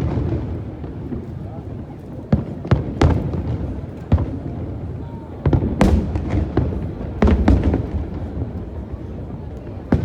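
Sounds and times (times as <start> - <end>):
fireworks bangs: 2.4 - 10.0.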